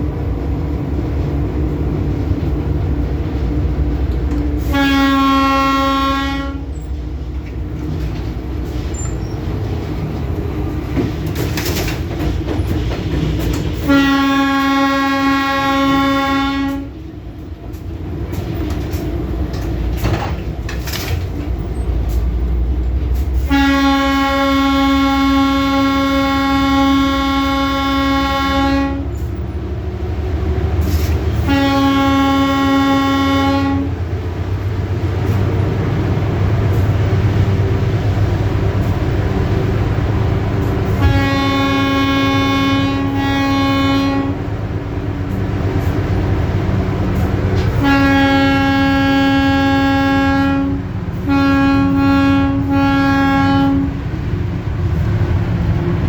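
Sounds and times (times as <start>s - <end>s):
moving train rumble: 0.0s - 56.0s
train horn blasts: 4.3s - 6.9s, 13.7s - 17.1s, 23.3s - 29.4s, 30.8s - 34.1s, 40.7s - 44.6s, 47.2s - 54.2s.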